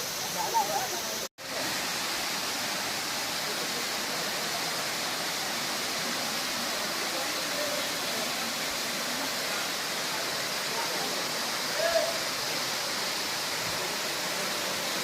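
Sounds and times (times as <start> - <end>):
hiss of falling rain: 0.0 - 15.0.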